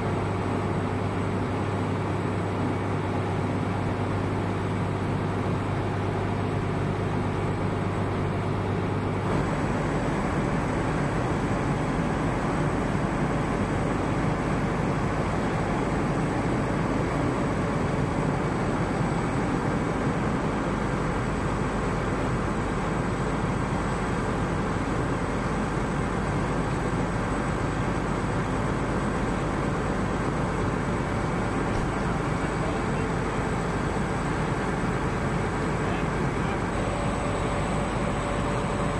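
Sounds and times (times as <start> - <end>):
faint high whine: 31.7 - 38.9
low hum: 36.7 - 38.9.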